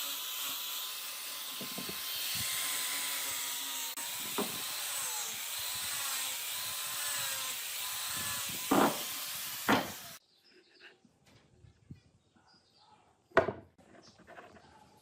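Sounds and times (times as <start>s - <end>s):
power tool running against wood: 0.0s - 10.2s.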